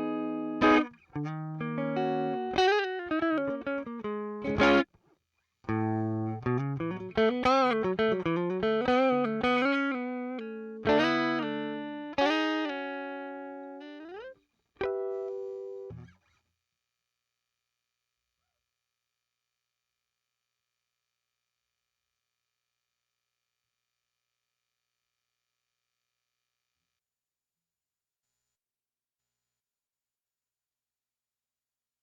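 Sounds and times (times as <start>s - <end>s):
electric guitar chords and phrases: 0.0s - 4.9s, 5.7s - 16.2s.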